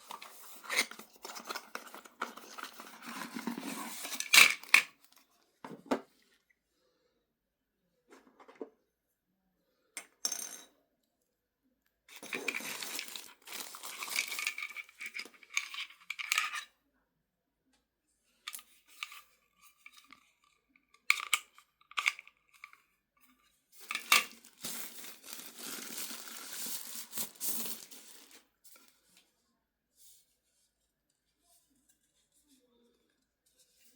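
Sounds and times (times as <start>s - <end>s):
packaging rustling and scraping: 0.0s - 5.2s, 12.1s - 16.6s, 23.8s - 29.1s.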